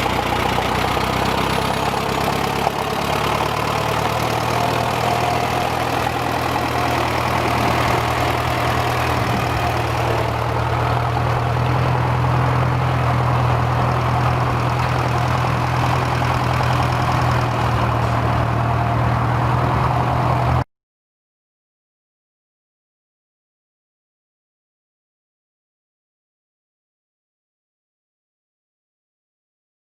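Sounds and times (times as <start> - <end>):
tractor engine idling: 0.0 - 20.6.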